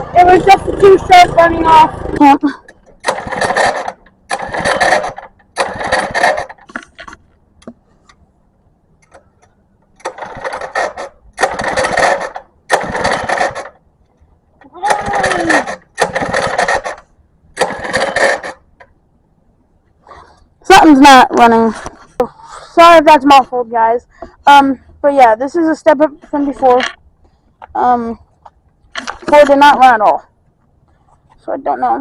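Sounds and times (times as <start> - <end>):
small gas engine surging: 0.0 - 6.9, 10.0 - 13.8, 14.7 - 17.0, 17.6 - 18.6.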